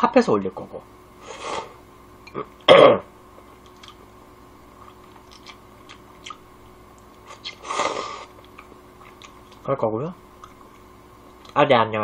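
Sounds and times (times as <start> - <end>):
quiet chewing of noodles: 3.4 - 4.1, 4.7 - 9.7, 10.4 - 11.6.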